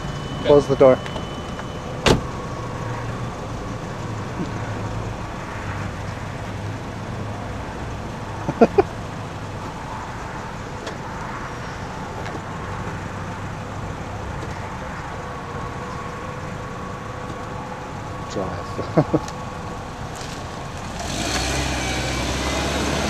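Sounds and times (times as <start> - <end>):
car engine idling: 0.0 - 21.1
car door shutting: 1.0 - 2.3.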